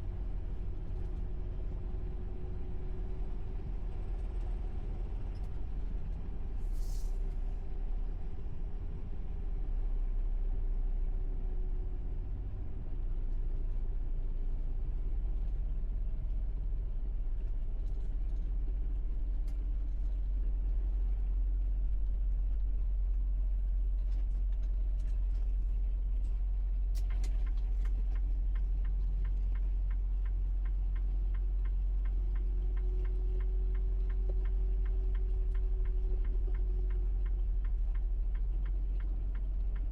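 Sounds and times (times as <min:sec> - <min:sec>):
truck engine and road noise: 0:00.0 - 0:39.9
turn signal clicking: 0:26.9 - 0:39.9.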